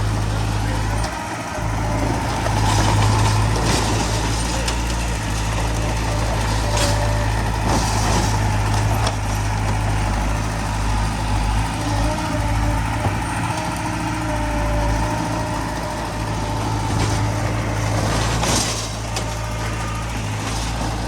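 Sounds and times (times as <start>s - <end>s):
diesel earthmoving machinery running: 0.0s - 21.0s
metal clanks and scraping: 2.2s - 10.1s, 12.8s - 21.0s.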